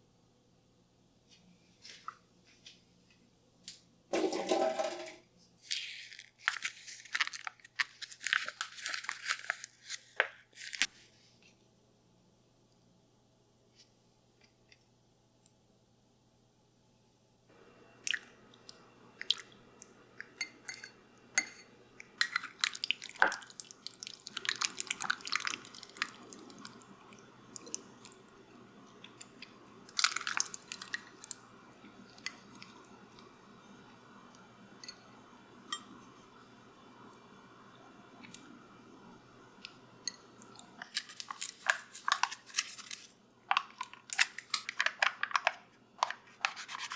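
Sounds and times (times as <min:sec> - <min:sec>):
faint steady hum: 0:00.0 - 0:46.9
utensils clicking and clattering: 0:04.1 - 0:05.2, 0:40.8 - 0:46.9.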